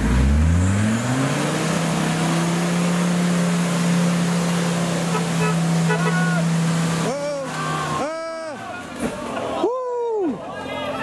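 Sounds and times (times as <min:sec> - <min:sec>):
engine revving at high revs: 0:00.0 - 0:07.4.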